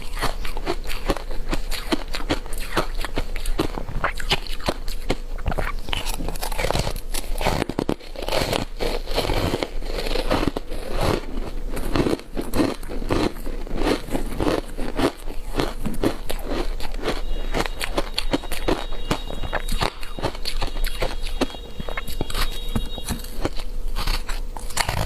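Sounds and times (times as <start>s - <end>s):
crunching ice while chewing: 0.0s - 25.0s.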